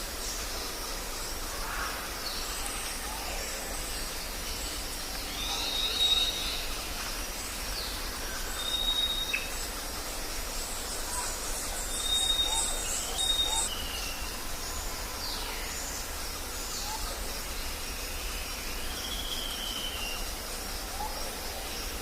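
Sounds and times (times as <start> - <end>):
steady background hiss: 0.0 - 22.0
birds calling: 10.4 - 22.0.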